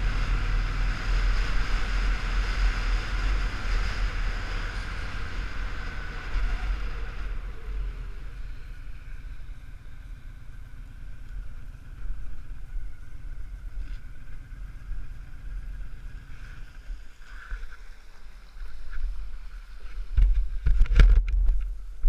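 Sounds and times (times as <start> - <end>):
motorcycle engine low rumble: 0.0 - 22.0
knocks and bumps on camera: 20.1 - 21.7.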